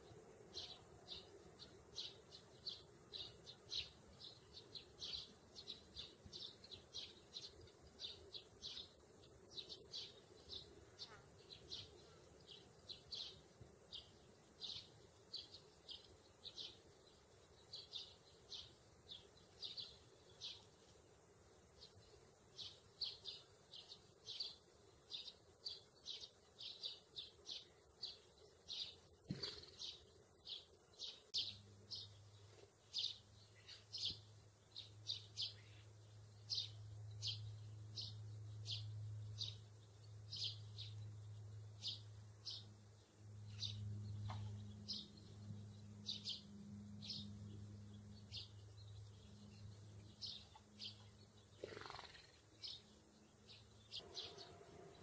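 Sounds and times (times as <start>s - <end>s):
small birds chirping: 0.0s - 55.0s
low steady hum: 30.0s - 51.6s.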